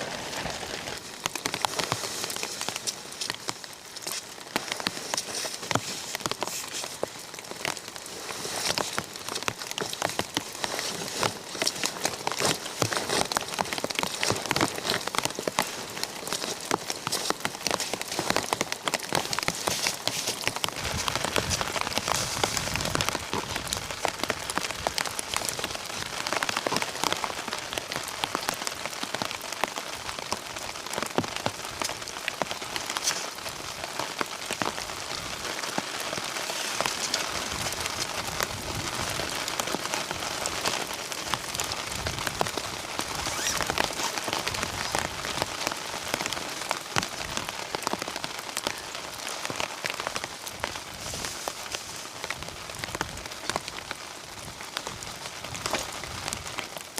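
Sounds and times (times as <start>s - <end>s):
rain drops striking: 0.0s - 56.9s
rain hiss: 0.0s - 56.9s.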